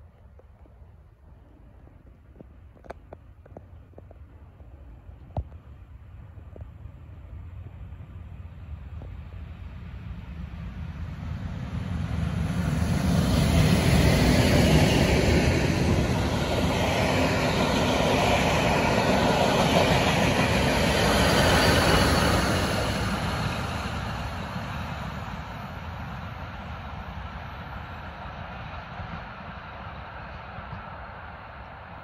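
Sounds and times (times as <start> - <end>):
train wheels rolling on rails: 12.6 - 27.3.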